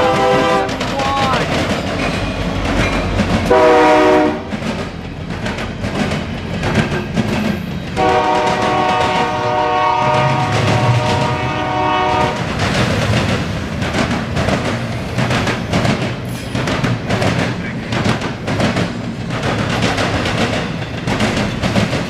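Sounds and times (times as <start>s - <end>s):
locomotive air horn: 0.0s - 0.8s, 3.5s - 4.5s, 8.0s - 12.5s
passing train rumble and clatter: 0.0s - 22.0s.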